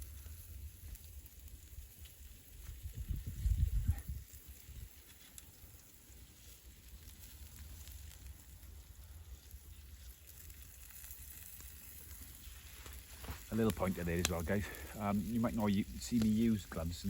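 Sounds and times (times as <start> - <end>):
wind rumble on microphone: 0.0 - 5.0
campfire crackling and popping: 0.0 - 17.0.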